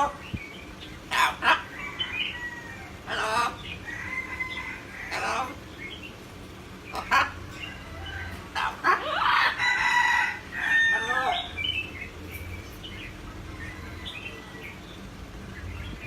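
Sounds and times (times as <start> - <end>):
crow-like bird call: 1.1 - 5.6.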